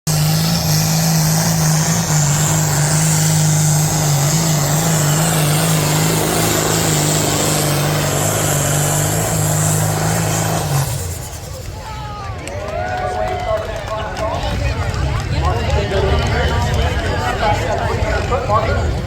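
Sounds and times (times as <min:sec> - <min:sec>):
engine running at high revs: 0:00.0 - 0:11.8.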